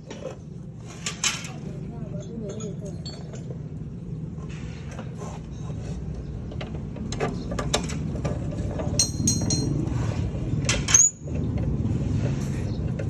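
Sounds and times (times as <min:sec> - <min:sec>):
metal clicks and clinks: 0:09.0 - 0:09.8.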